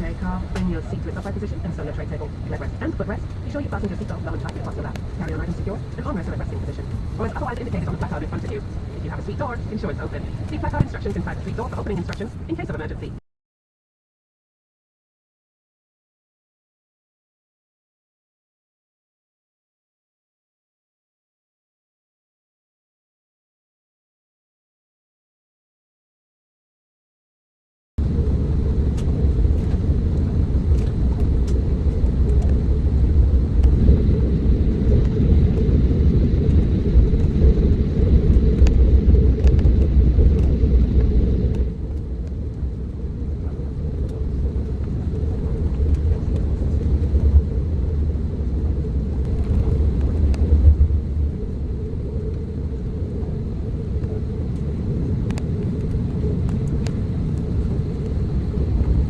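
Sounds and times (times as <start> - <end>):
airliner cabin rumble: 0.0 - 13.2, 28.0 - 59.0
faint high whine: 0.0 - 13.2, 28.0 - 59.0.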